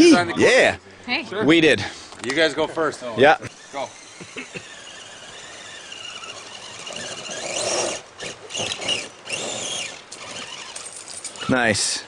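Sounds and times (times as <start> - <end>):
rc truck motor whining: 3.2 - 11.2.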